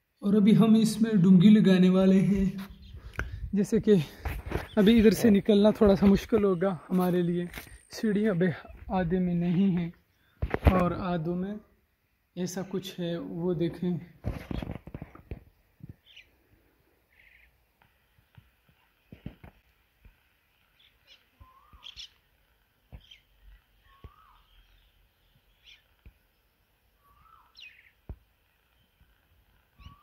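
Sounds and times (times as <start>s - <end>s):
high quick bird chirps: 20.8s - 22.2s.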